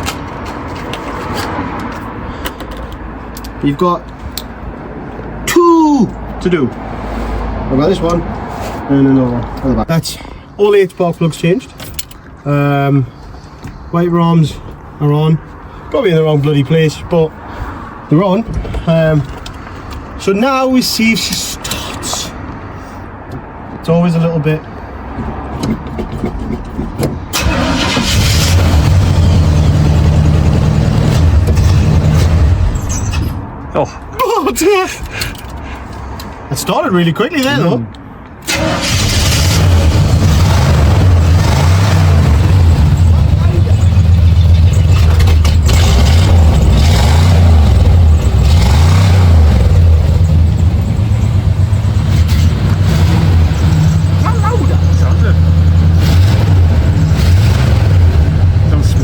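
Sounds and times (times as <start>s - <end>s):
engine cranking and idling: 25.6s - 32.8s, 38.4s - 59.0s.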